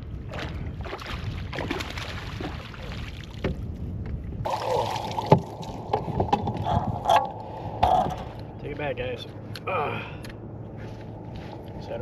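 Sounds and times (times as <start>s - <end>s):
wind rumbling on microphone: 0.0s - 9.5s
water sloshing against kayak hull: 4.5s - 8.5s.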